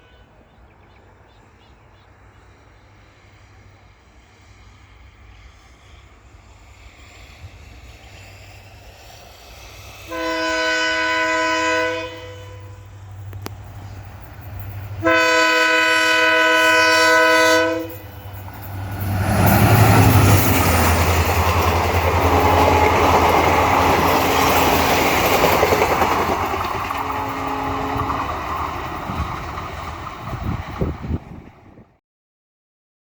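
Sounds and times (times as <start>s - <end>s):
locomotive engine droning: 10.0s - 31.8s
locomotive horn blast: 10.1s - 13.4s, 15.0s - 18.2s, 22.1s - 24.6s, 26.8s - 28.6s
train wheels rattling over rails: 13.0s - 31.8s.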